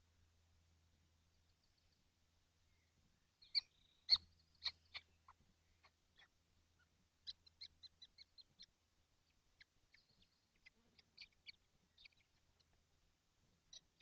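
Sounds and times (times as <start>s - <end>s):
faint low hum: 0.0s - 14.0s
kestrel calls: 3.4s - 12.8s.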